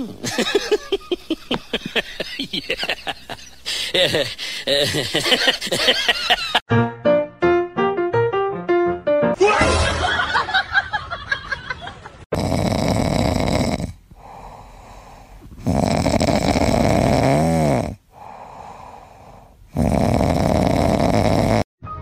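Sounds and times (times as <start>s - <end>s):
dog snoring: 12.3s - 21.7s.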